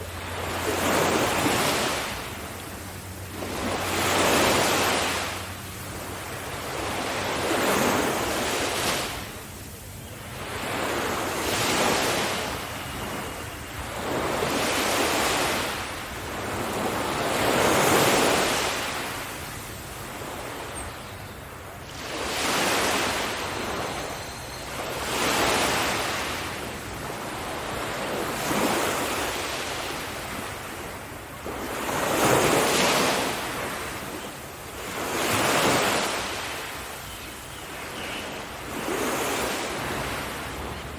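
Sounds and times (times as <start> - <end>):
ocean waves breaking on beach: 0.0 - 40.9.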